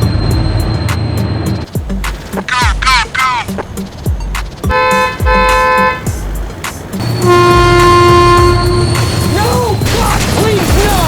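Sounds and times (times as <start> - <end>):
cartoon train horn toots: 4.7 - 6.1, 7.0 - 9.3.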